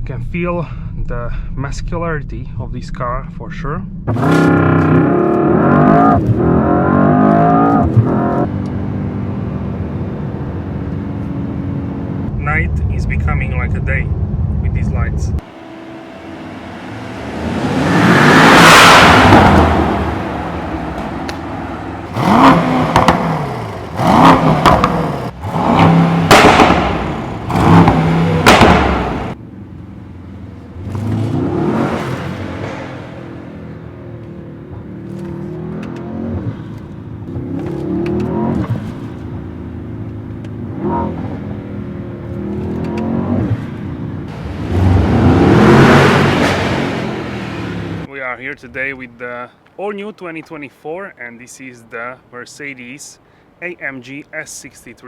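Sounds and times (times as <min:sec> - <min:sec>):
car engine accelerating hard: 0:04.1 - 0:12.3, 0:15.4 - 0:48.1.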